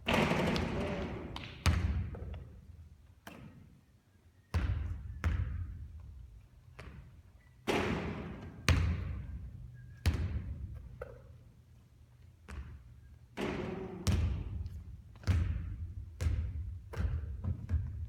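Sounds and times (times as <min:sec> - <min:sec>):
basketball bouncing: 0:00.0 - 0:02.4, 0:04.6 - 0:05.7, 0:07.7 - 0:09.4, 0:10.0 - 0:11.3, 0:12.4 - 0:18.0.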